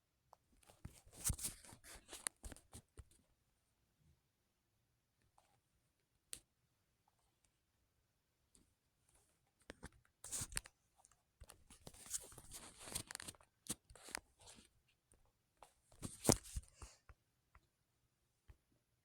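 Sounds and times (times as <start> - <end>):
rustling and scraping: 11.5 - 14.7.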